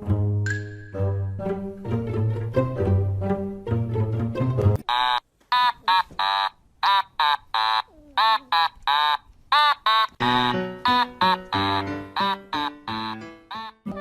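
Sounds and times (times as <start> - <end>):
music: 0.0 - 4.8, 10.2 - 14.0.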